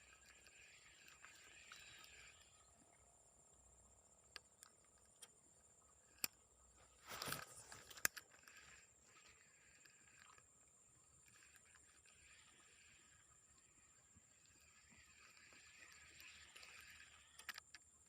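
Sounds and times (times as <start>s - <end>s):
faint high-pitched whine: 0.0s - 18.0s
sharp clicks: 0.0s - 18.0s
crackling rustle: 6.1s - 18.0s.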